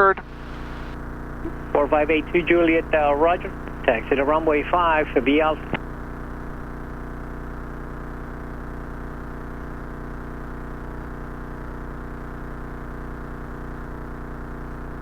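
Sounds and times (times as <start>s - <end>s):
airplane engine droning in cockpit: 0.0s - 10.2s.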